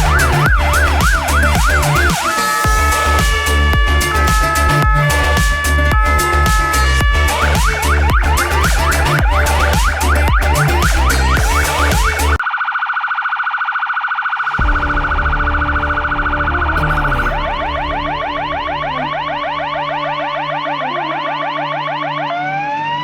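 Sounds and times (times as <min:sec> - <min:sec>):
fire engine siren: 0:00.0 - 0:23.0
low rumble: 0:14.5 - 0:20.7.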